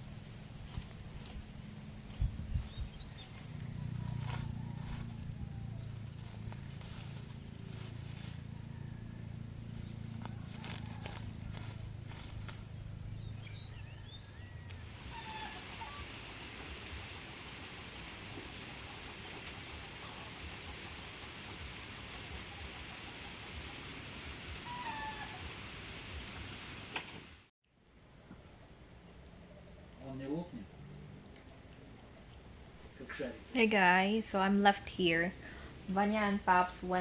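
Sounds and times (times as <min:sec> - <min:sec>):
faint bird chirps: 0:13.5 - 0:27.5
insect high-pitched buzz: 0:14.7 - 0:27.5.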